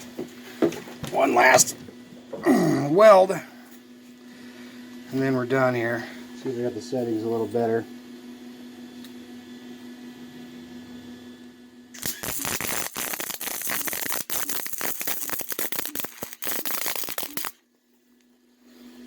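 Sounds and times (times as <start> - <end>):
welding arc crackling: 11.9 - 17.6.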